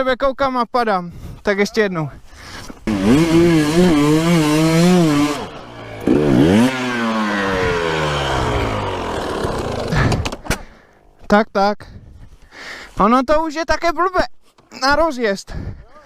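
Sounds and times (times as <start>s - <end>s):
dirt bike engine revving: 2.8s - 11.1s.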